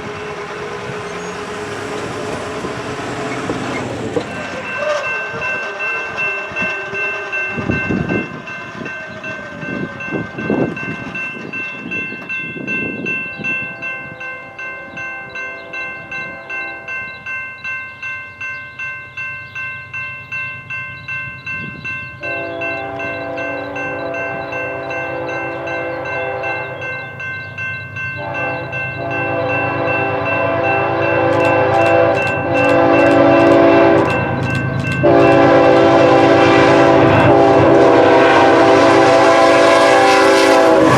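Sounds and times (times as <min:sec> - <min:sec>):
railcar wheels knocking: 0:00.0 - 0:14.3, 0:15.4 - 0:40.9
locomotive horn blasts: 0:22.2 - 0:27.0, 0:28.2 - 0:40.9.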